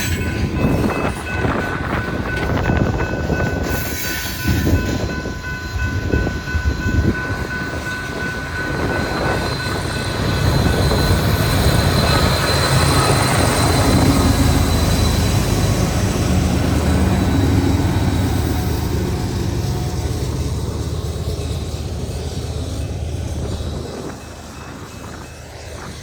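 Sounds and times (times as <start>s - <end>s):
crossing bell ringing: 0.0s - 26.0s
diesel locomotive rumble: 0.0s - 26.0s.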